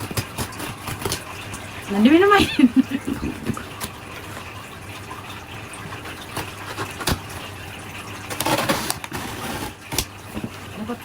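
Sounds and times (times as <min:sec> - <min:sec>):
packaging rustling and scraping: 0:00.0 - 0:01.8, 0:05.9 - 0:07.6, 0:08.2 - 0:10.7.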